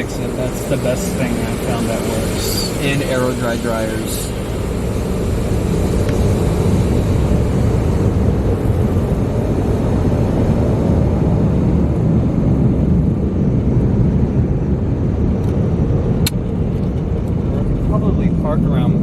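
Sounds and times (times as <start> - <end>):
blower dryers rushing air: 0.0 - 19.0.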